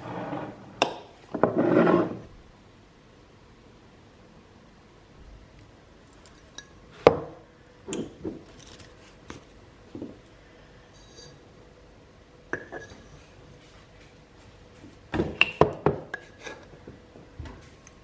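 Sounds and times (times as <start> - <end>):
hard objects knocking and clinking: 6.2 - 10.2.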